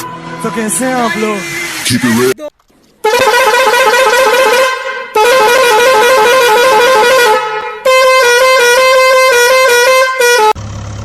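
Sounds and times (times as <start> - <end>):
electronic horn tones: 0.0 - 2.4.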